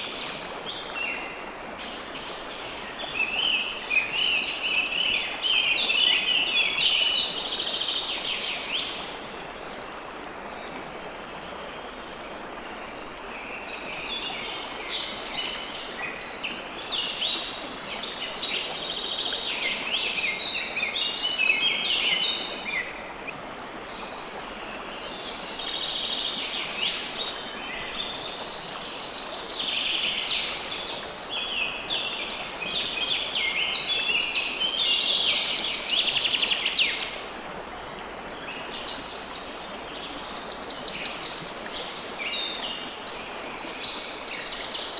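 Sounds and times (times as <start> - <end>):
running water: 0.0 - 44.9.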